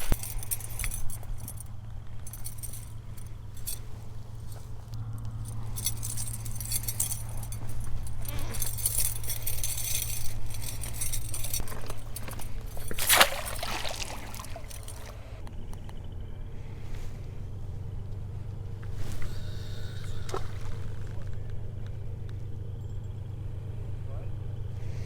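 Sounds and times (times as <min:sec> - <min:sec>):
gear clinking and jangling: 0:00.0 - 0:15.4, 0:19.0 - 0:21.2
steady low hum: 0:00.0 - 0:25.0.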